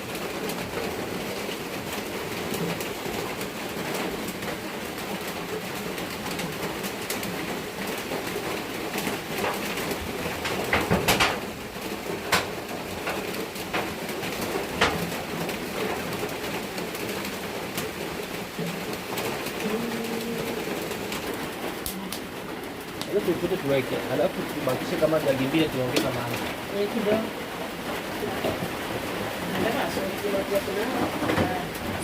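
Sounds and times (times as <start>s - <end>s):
doves cooing: 19.4s - 22.6s.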